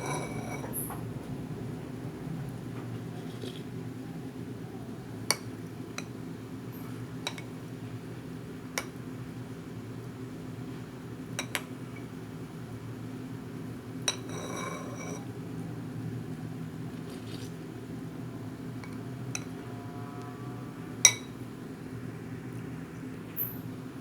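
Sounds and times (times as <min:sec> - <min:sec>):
glass and kitchenware clinking: 0:00.0 - 0:01.0
steady low hum: 0:00.0 - 0:11.2.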